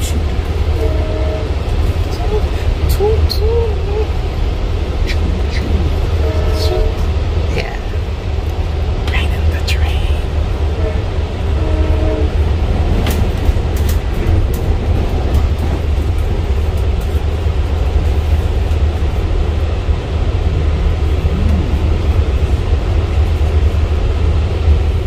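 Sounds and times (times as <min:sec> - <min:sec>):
train car rumbling on track: 0:00.0 - 0:25.0.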